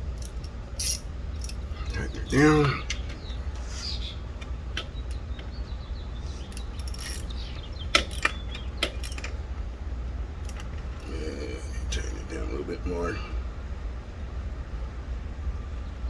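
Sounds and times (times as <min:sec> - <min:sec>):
steady low rumble: 0:00.0 - 0:16.0
wrench clicking on bolt: 0:00.1 - 0:01.7, 0:06.3 - 0:09.4.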